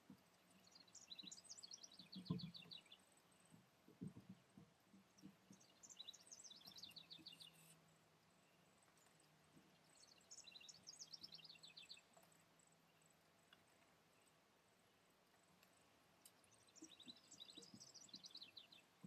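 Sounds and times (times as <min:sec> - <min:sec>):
songbird chirping: 0:00.0 - 0:19.0.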